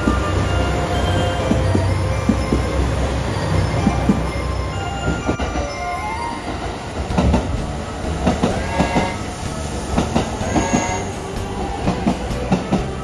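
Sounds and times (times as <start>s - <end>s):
train rumble: 0.0s - 13.0s
train wheels clicking over rail joints: 0.0s - 13.0s.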